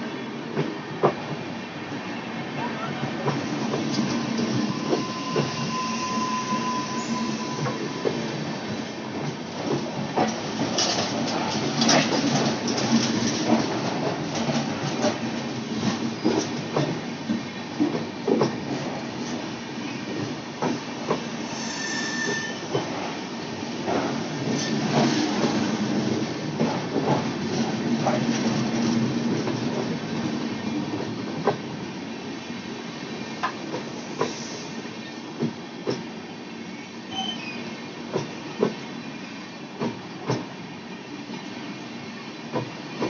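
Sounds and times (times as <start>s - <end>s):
train running on rails: 0.0s - 43.0s
high wheel squeal: 4.6s - 8.2s, 21.5s - 22.8s.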